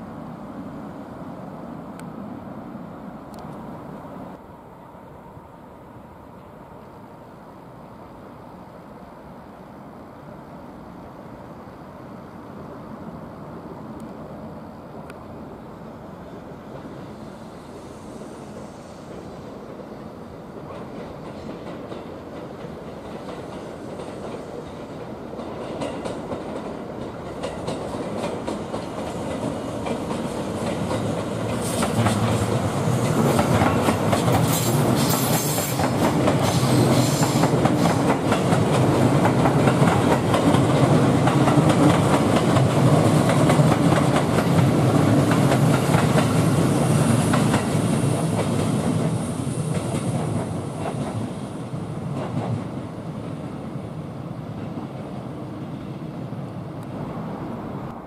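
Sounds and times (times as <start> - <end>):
train wheels clacking over rail joints: 20.6 - 51.4.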